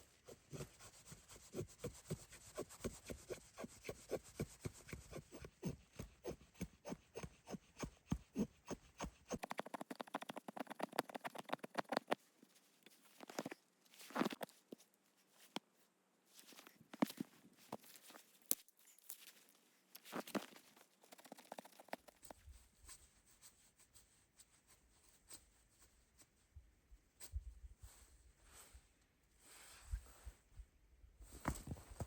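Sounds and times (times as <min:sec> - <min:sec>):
hand saw cutting wood: 0:00.3 - 0:12.1.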